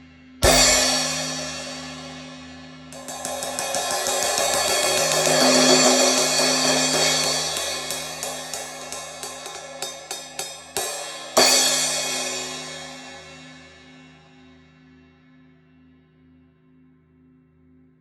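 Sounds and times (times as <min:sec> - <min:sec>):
crash cymbal struck and ringing: 0:00.4 - 0:14.4.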